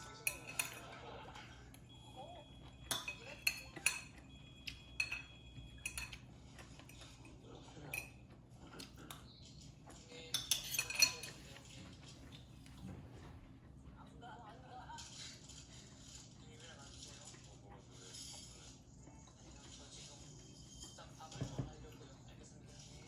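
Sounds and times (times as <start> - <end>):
cutlery clinking on dishes: 0.0 - 1.8, 2.6 - 12.9, 20.8 - 22.0.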